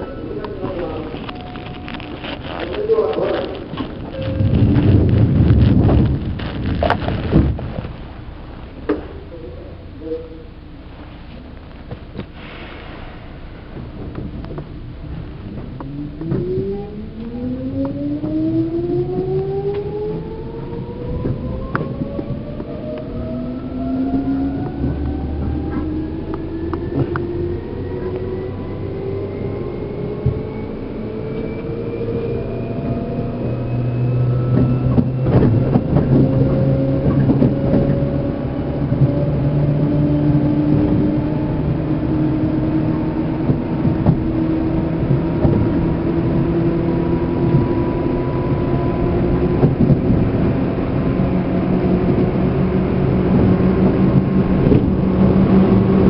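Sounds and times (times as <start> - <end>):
wheels rumbling on rail: 0.0 - 56.0
train motor whine rising: 12.2 - 56.0
track clicks and knocks: 34.4 - 38.2.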